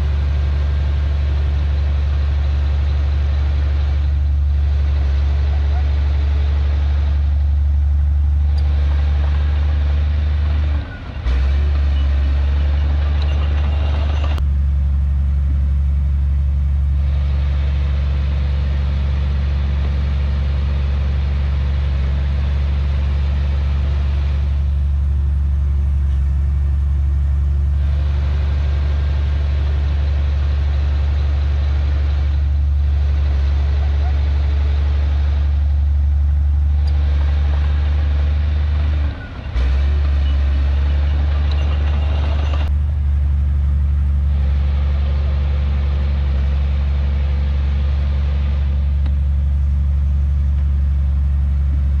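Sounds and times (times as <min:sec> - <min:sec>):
heavy diesel engine droning: 0:00.0 - 0:52.0.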